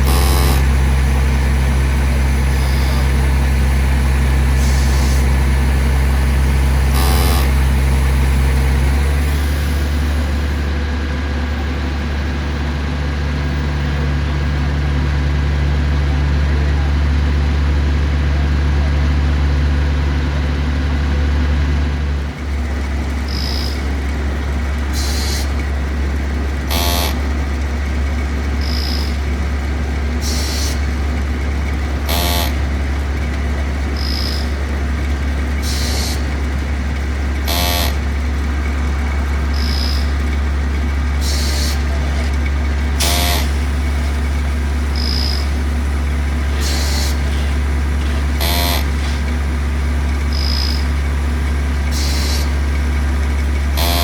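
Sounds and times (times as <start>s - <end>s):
short high beep: 0.0s - 0.7s, 6.9s - 7.6s
heavy engine humming: 0.0s - 54.0s.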